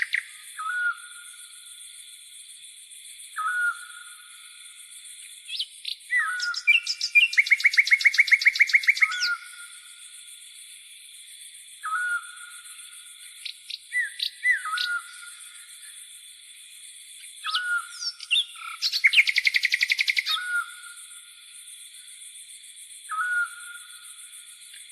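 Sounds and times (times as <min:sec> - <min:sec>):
songbirds whistling: 0:00.0 - 0:01.5, 0:03.4 - 0:04.4, 0:05.4 - 0:09.9, 0:11.8 - 0:16.0, 0:17.3 - 0:21.1, 0:23.1 - 0:24.2
fast bird trill: 0:06.2 - 0:09.4, 0:17.5 - 0:20.6.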